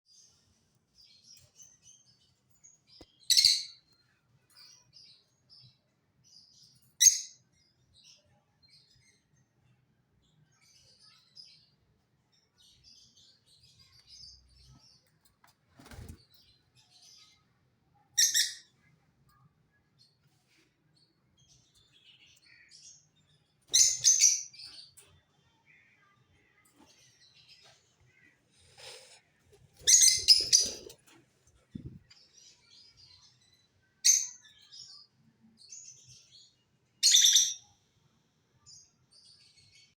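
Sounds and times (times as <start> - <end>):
soft bird twittering: 25.7 - 37.8
lovebirds chirping shrilly: 29.8 - 31.0.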